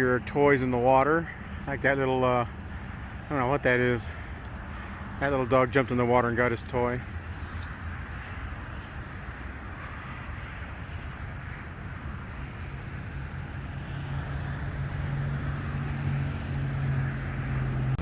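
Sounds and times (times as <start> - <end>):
wind rumbling on microphone: 6.8 - 18.0
low steady hum: 11.6 - 18.0.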